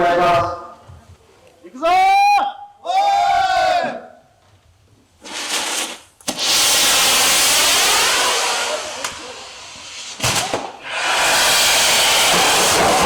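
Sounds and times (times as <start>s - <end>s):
firework pops: 5.2s - 10.8s, 11.9s - 13.0s
firework crack: 5.2s - 13.0s
fireworks spraying sparks hiss: 5.2s - 13.0s.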